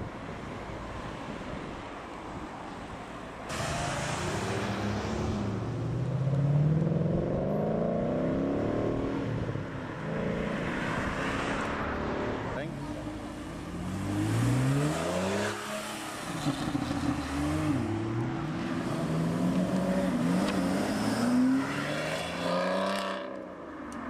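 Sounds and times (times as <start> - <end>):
another car engine rising: 3.5 - 9.3
car engine accelerating: 3.5 - 9.5.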